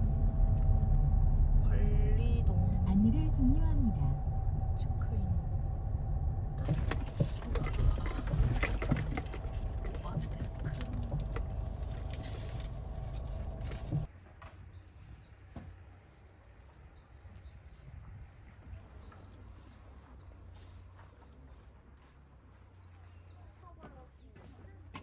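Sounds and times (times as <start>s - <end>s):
car interior driving noise: 0.0s - 14.2s
faint low hum: 0.0s - 24.9s
small birds chirping: 14.6s - 24.8s.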